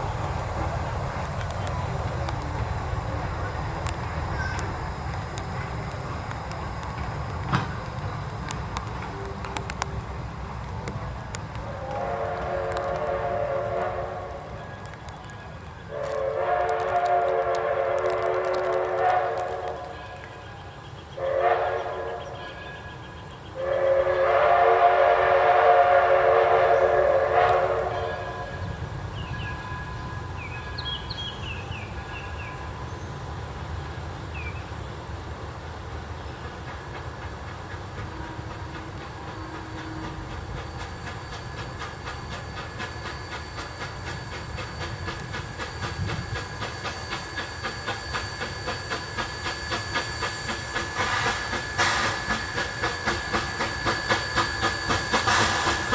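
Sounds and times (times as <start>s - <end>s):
train running noise: 0.0s - 55.9s
steam locomotive whistle: 11.5s - 15.0s, 15.8s - 32.9s, 38.0s - 55.9s.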